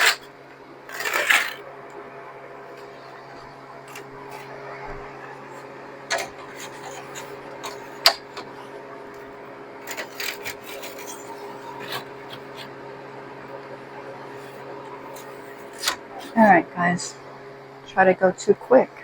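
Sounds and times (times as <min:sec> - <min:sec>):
trays clicking and scraping: 0:00.0 - 0:00.3, 0:00.9 - 0:01.6, 0:05.5 - 0:12.7
low machine hum: 0:00.0 - 0:19.0.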